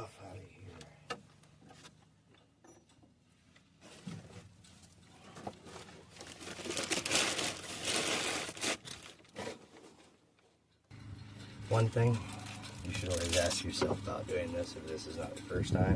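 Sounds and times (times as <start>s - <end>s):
packing material crinkling: 5.6s - 9.6s.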